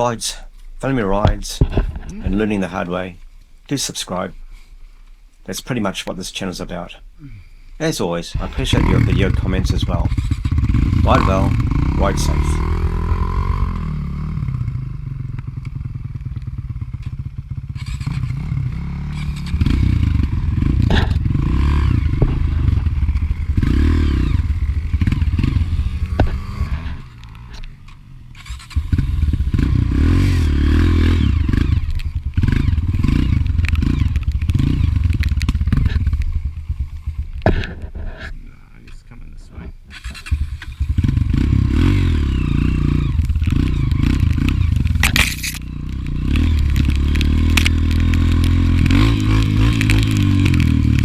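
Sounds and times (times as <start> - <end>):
dirt bike engine revving: 7.8 - 15.1, 17.7 - 38.2, 39.9 - 51.0.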